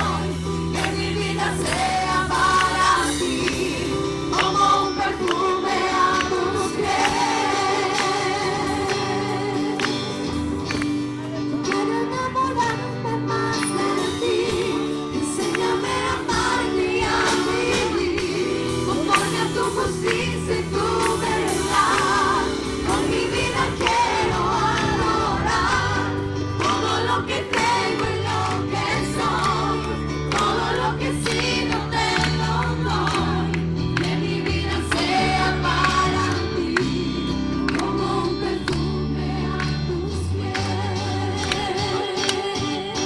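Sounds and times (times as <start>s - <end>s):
group of voices singing: 0.0s - 10.8s, 11.5s - 43.0s
band with bass and drums: 0.0s - 43.0s.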